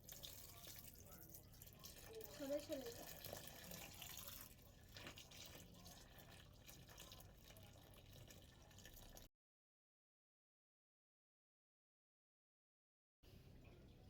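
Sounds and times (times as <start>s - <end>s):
faint running water: 0.0s - 9.3s
water drips: 0.0s - 9.3s.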